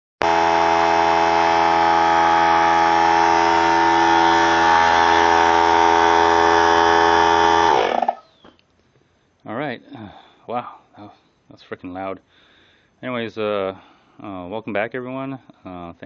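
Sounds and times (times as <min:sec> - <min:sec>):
air compressor motor whining: 0:00.2 - 0:08.3
motor winding down: 0:00.9 - 0:08.2.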